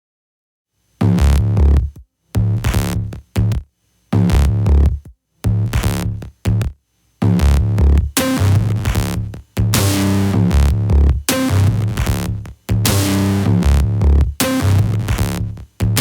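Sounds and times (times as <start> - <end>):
electronic music with drum beat: 4.2 - 16.0.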